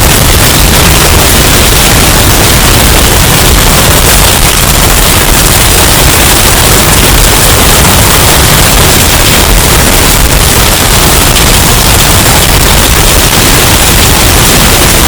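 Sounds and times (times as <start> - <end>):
distorted hurricane wind: 0.0 - 15.0.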